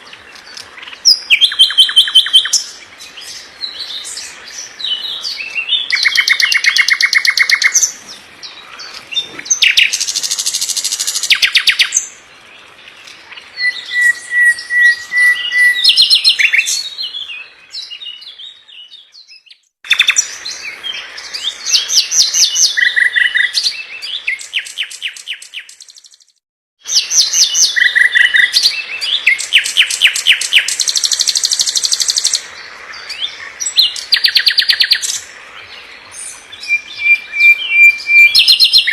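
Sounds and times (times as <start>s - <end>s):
songbird trills and whistles: 0.9s - 4.2s, 13.6s - 20.3s, 21.3s - 26.3s, 26.9s - 32.4s, 36.1s - 38.9s.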